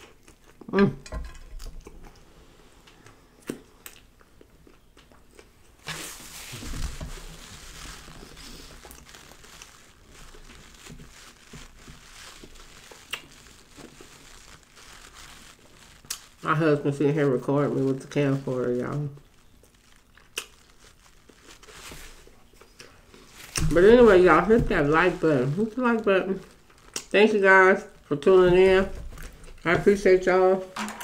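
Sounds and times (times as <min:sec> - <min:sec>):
person chewing sandwich: 0:00.0 - 0:01.0, 0:01.6 - 0:16.4, 0:19.1 - 0:23.6, 0:26.5 - 0:27.1.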